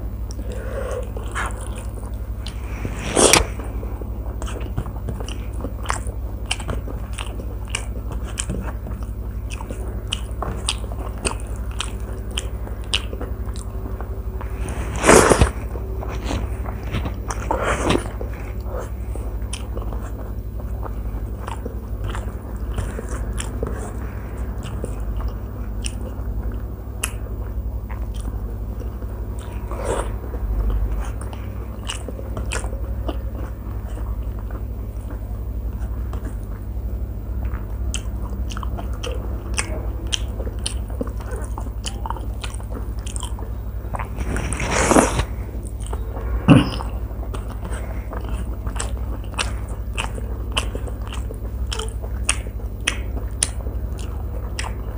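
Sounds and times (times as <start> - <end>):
person chewing with wet mouth sounds: 0.0 - 54.9
steady low hum: 0.0 - 54.9
lip smacks and clicks: 46.7 - 54.9.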